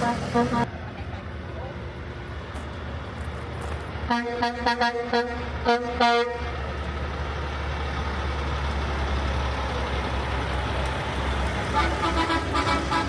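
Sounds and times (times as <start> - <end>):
truck horn short toots: 0.0 - 0.7, 4.1 - 6.5
truck engine rumble: 0.0 - 13.0.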